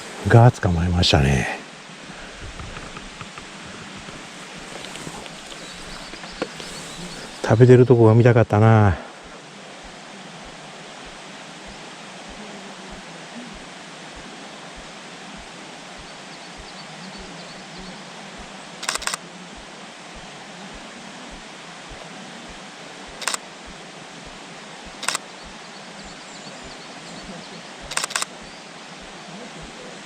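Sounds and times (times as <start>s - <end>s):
background hiss: 0.0s - 30.0s
camera shutter firing: 18.8s - 19.2s, 23.2s - 23.4s, 25.0s - 25.2s, 27.9s - 28.3s.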